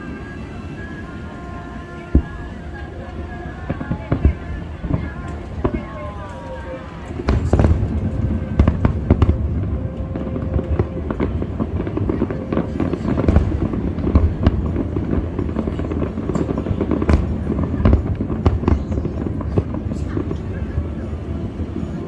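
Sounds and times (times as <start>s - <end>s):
fireworks bangs and crackles: 0.0s - 22.0s
deep rumble of booms: 7.1s - 21.8s.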